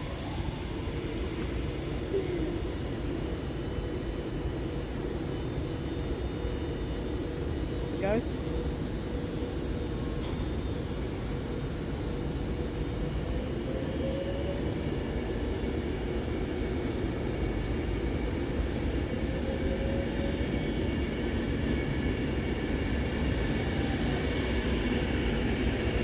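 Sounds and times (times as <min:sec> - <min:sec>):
train rumbling moving off: 0:00.0 - 0:26.0.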